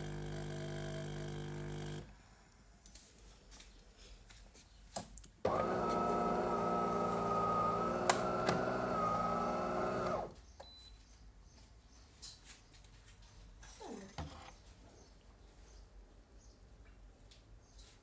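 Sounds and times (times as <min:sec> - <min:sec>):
coffee machine motor humming: 0:00.0 - 0:02.1, 0:05.5 - 0:10.4.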